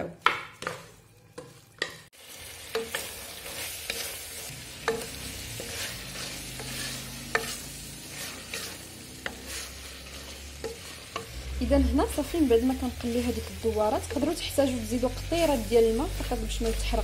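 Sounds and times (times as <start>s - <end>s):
wooden spoon knocking metal pot: 0.0s - 2.1s
food sizzling in oil: 0.0s - 17.0s.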